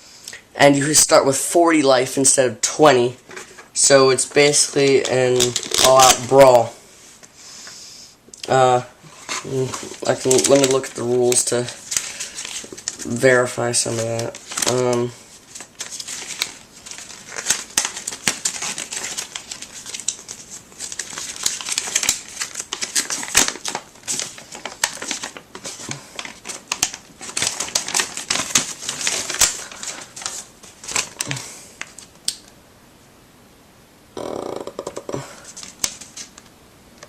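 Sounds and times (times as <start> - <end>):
paper rustling and crinkling: 2.9 - 6.7, 8.7 - 32.2, 35.4 - 36.5.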